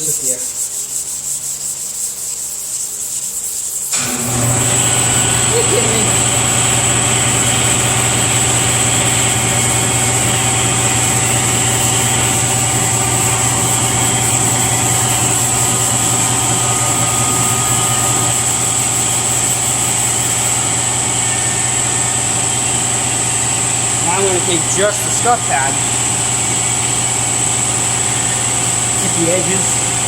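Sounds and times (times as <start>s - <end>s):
air compressor running: 3.9s - 30.0s.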